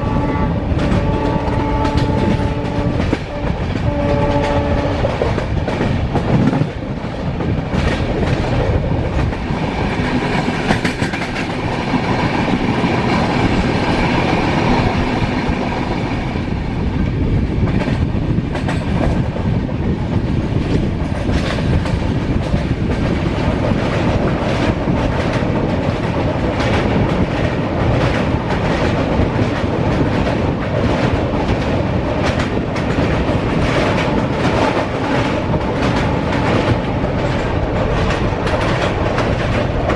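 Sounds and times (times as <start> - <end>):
train rumble: 0.0 - 39.9
wheels clicking over rail joints: 20.5 - 39.9.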